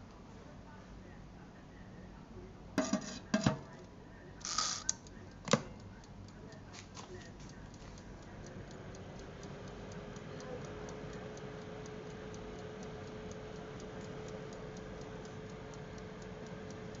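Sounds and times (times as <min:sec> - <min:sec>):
faint steady hum: 0:00.0 - 0:17.0
rapid regular ticking: 0:04.4 - 0:17.0.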